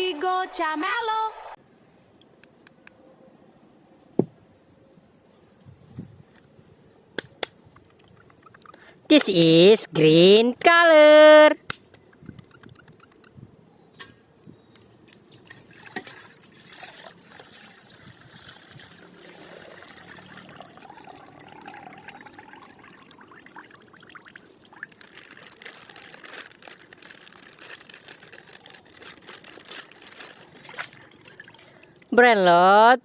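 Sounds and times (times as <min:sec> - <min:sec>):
plastic wrapping rustling: 0:24.1 - 0:32.0.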